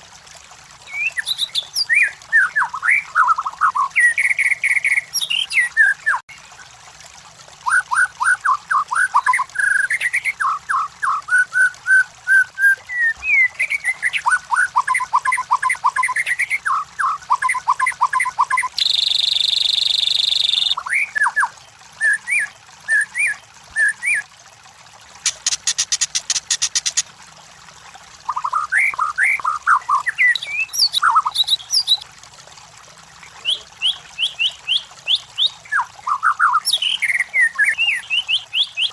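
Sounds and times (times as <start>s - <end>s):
bird singing whistled phrases: 0.9s - 6.2s, 7.7s - 24.2s, 28.3s - 32.0s, 33.4s - 38.9s
fast high bird rattle: 25.2s - 27.0s.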